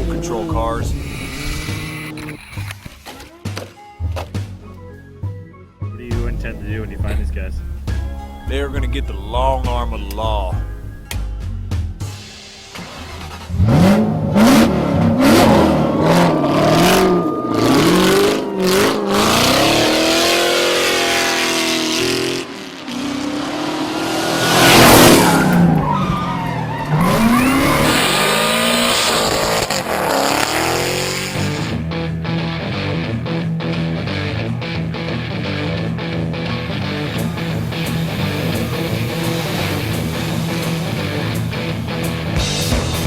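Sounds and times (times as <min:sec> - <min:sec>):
engines revving: 0:00.0 - 0:02.8, 0:06.0 - 0:10.6, 0:12.7 - 0:43.0
tyres squealing and skidding: 0:00.8 - 0:02.9, 0:12.9 - 0:22.4, 0:23.0 - 0:31.7.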